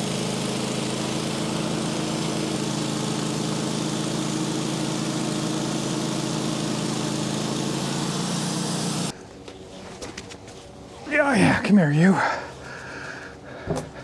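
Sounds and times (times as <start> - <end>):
sawmill engine running: 0.0 - 9.2.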